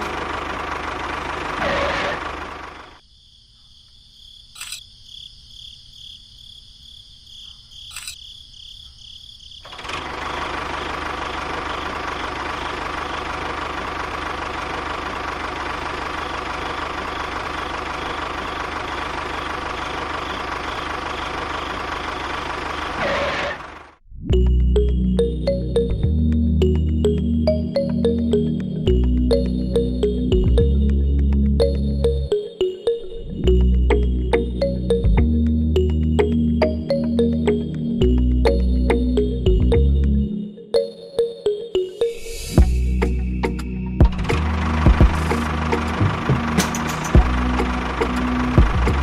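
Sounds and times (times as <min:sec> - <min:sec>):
small engine running: 0:00.0 - 0:03.0, 0:09.7 - 0:24.0, 0:42.6 - 0:49.0.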